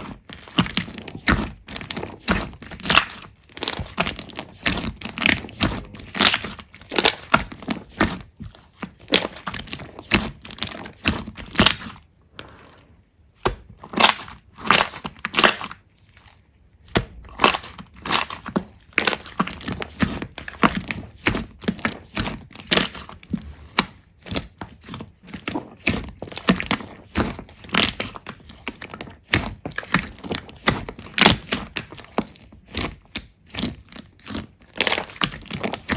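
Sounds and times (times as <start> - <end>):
slime crackling and popping: 0.1 - 12.0, 13.4 - 15.8, 16.8 - 35.9.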